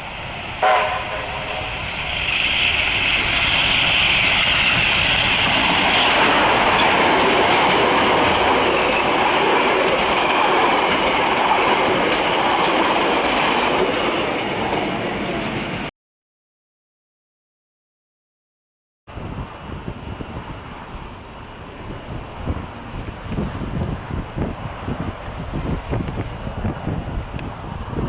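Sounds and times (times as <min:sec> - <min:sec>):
train wheels on rail: 0:00.0 - 0:15.9, 0:19.2 - 0:28.0.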